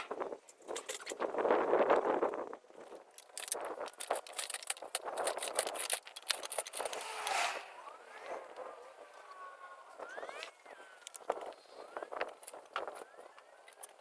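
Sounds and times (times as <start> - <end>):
metallic clinking and rattling: 2.8 - 7.8.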